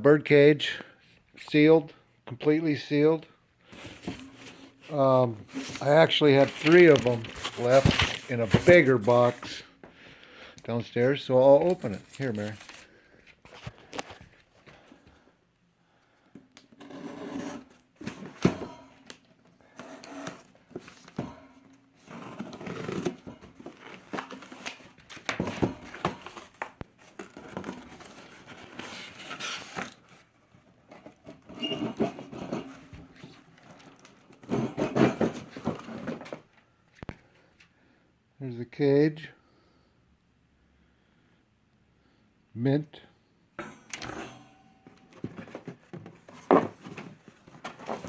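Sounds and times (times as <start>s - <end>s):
cardboard and paper rustling: 3.7s - 9.7s, 11.0s - 14.9s, 16.8s - 21.3s, 22.0s - 36.5s, 44.8s - 48.0s.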